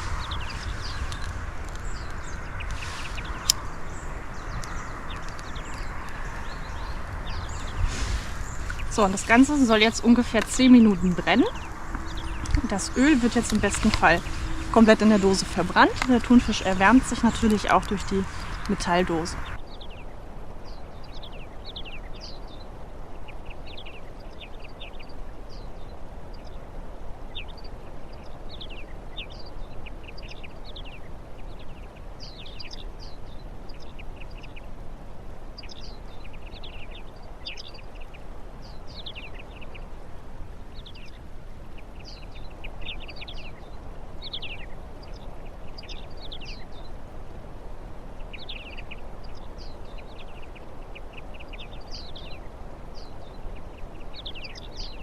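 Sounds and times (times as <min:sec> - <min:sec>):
steady background noise: 0:00.0 - 0:29.1
small birds chirping: 0:00.0 - 0:55.0.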